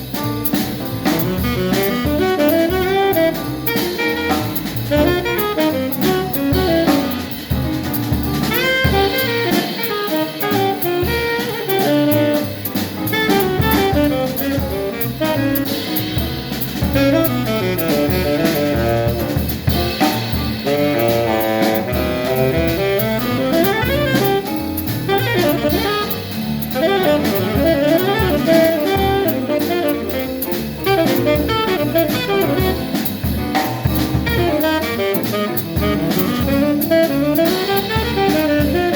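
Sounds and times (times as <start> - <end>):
jazz drum kit and band: 0.0 - 38.9
saxophone fast melodic lines: 0.4 - 38.9.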